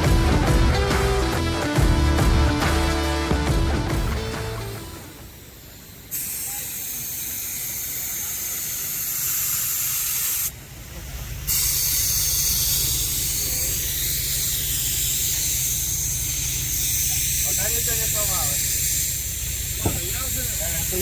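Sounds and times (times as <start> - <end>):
steady hissing: 4.2 - 21.0.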